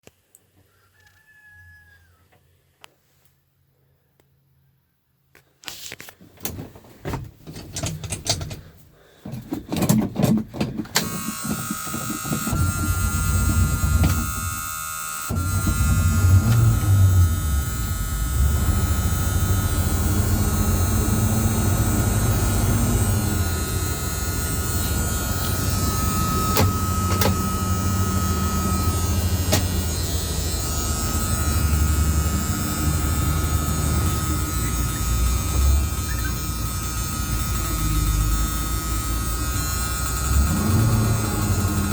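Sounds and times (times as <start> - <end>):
car starter cranking: 6.4 - 41.9
car engine idling: 7.3 - 14.6, 15.3 - 41.9
high warning buzzer: 11.0 - 41.9.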